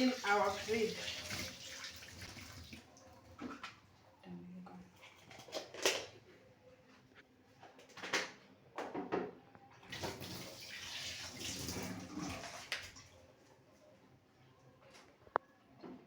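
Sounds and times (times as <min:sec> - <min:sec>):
water splashing in a bucket: 0:00.0 - 0:03.8, 0:09.8 - 0:13.2.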